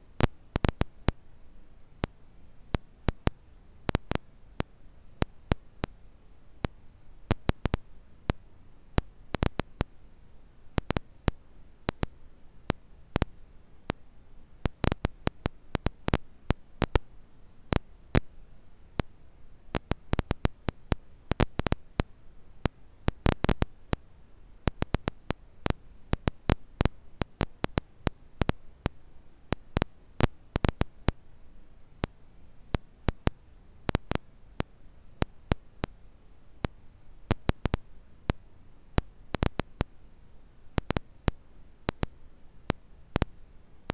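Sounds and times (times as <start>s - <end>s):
quiet background hiss: 0.0s - 43.9s
campfire crackling and popping: 23.1s - 24.0s, 24.7s - 28.6s.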